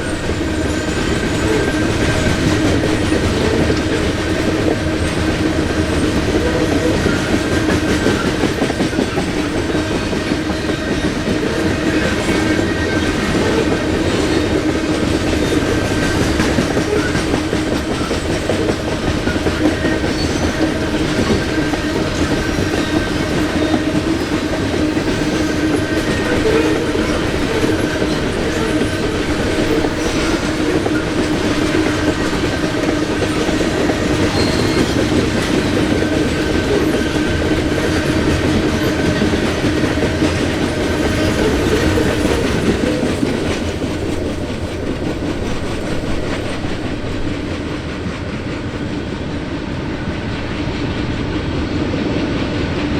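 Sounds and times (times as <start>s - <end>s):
freight train cars rolling: 0.0s - 52.9s.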